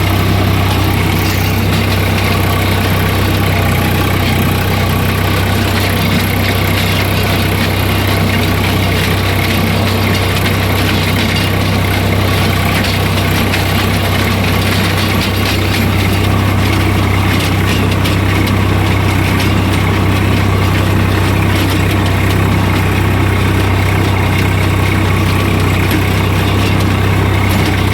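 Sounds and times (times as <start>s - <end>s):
tractor diesel engine idling: 0.0s - 27.9s.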